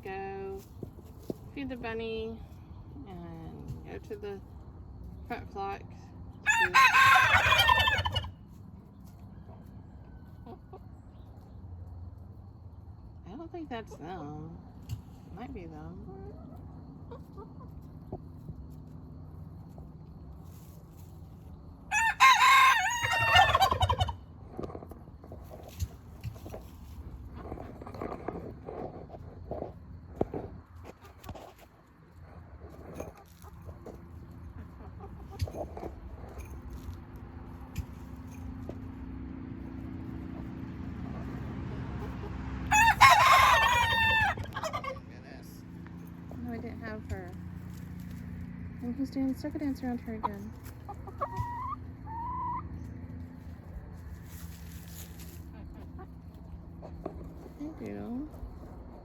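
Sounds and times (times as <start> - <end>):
rooster crowing: 6.4 - 8.3, 21.9 - 24.1, 42.7 - 44.9.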